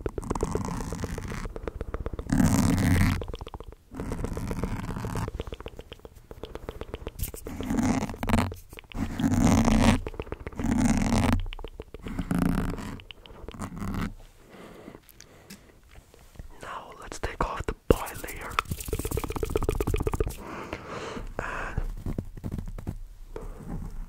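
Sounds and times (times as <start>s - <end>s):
mouth sounds close to microphone: 0.0s - 14.2s, 16.1s - 20.6s.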